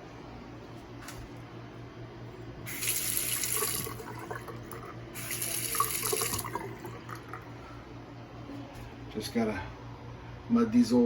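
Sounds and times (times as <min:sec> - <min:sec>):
water running into sink basin: 0:02.7 - 0:07.5.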